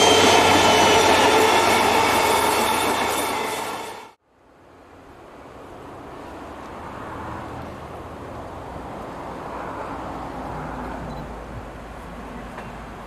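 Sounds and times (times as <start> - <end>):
distant train rumble: 0.0 - 4.2.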